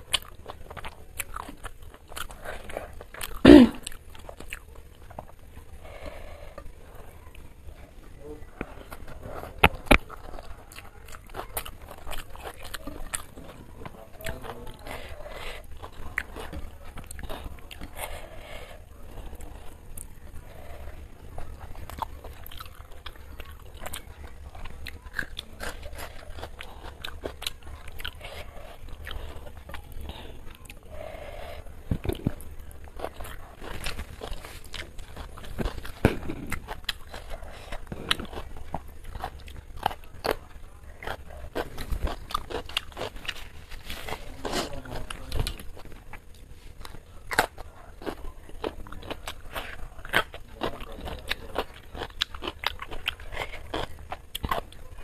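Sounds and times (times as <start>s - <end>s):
person chewing with wet mouth sounds: 0.0s - 55.0s
cucumber crunch: 31.9s - 55.0s.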